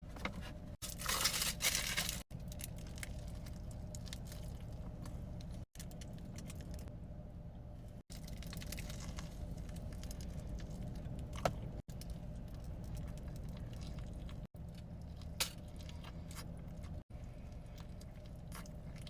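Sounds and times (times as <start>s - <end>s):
low hum: 0.0s - 19.0s
foil wrapper crinkling and tearing: 0.8s - 4.7s, 8.1s - 10.7s
squishy eating sounds: 8.1s - 19.0s.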